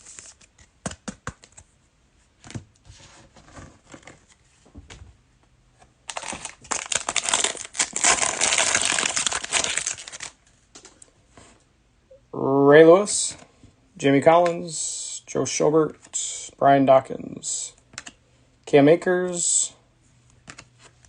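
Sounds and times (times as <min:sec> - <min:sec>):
foil wrapper crinkling: 0:06.1 - 0:10.4.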